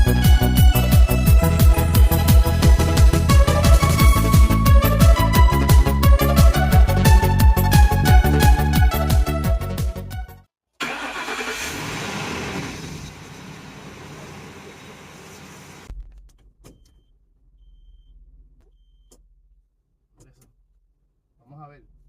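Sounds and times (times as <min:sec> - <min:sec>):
van engine running: 0:00.0 - 0:04.8, 0:10.8 - 0:15.9.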